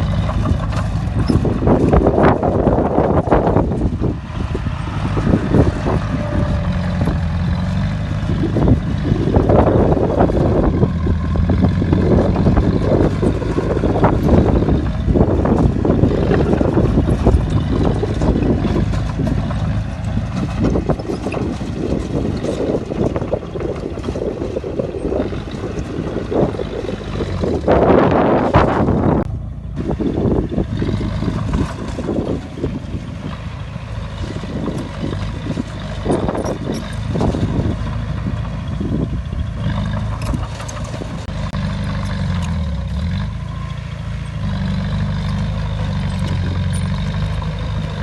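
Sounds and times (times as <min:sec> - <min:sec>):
clanks and knocks: 0:00.0 - 0:04.0, 0:11.5 - 0:24.6, 0:34.2 - 0:38.1
heavy diesel engine under load: 0:00.0 - 0:48.0.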